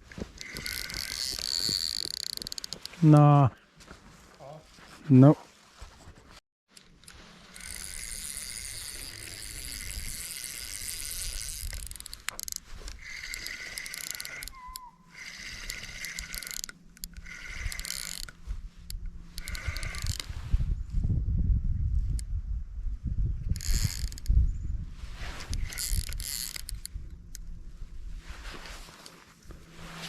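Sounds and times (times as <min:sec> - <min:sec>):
fishing reel whirring: 0:00.3 - 0:02.9, 0:06.8 - 0:20.4, 0:23.5 - 0:24.4, 0:25.4 - 0:27.5.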